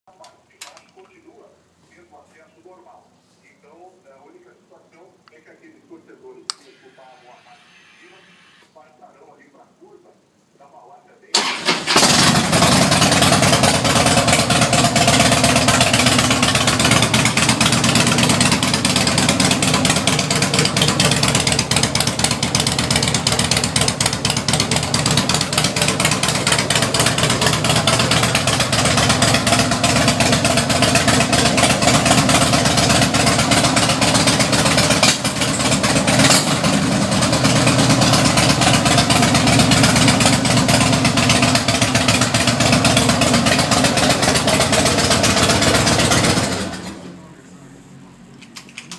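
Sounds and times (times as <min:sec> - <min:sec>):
loud motorcycle engine running: 0:11.9 - 0:47.3.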